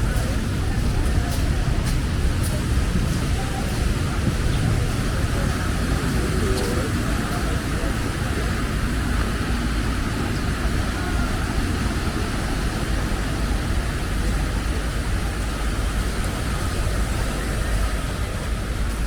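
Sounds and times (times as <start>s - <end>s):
surf washing: 0.0s - 19.0s
wind rumbling on microphone: 0.0s - 19.0s.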